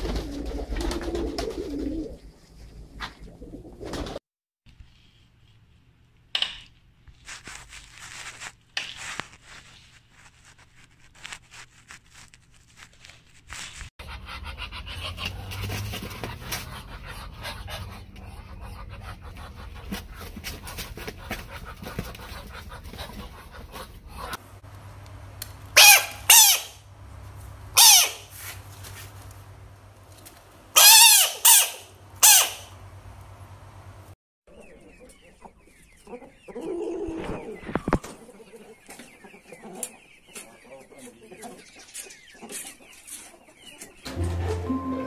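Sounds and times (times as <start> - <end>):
frogs giving squeaky calls: 25.8 - 26.8, 27.8 - 28.3, 30.8 - 32.7.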